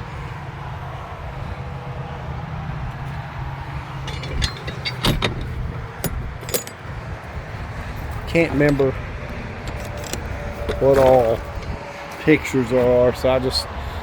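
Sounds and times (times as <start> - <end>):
keys jingling: 4.1 - 6.9, 9.6 - 11.5.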